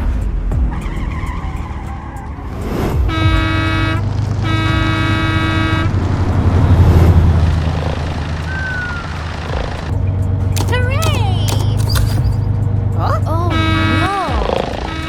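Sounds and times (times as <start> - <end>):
low engine rumble: 2.4 - 15.0
vehicle horn blasts: 3.1 - 6.1, 13.5 - 15.0.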